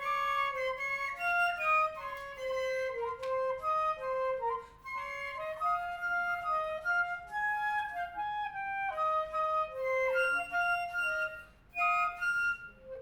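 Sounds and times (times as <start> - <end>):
clarinet playing quick runs: 0.0 - 13.0
flute playing quick runs: 0.0 - 13.0.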